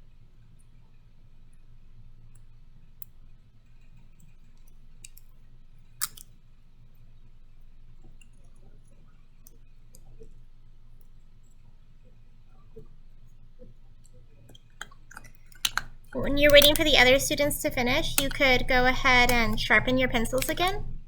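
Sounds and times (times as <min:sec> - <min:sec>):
light clicks and taps: 0:13.6 - 0:20.9
low steady hum: 0:15.0 - 0:21.0.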